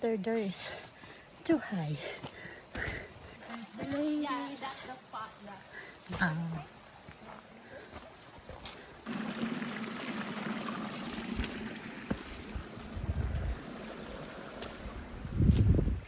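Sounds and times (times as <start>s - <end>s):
creek water running over rocks: 9.0s - 15.6s.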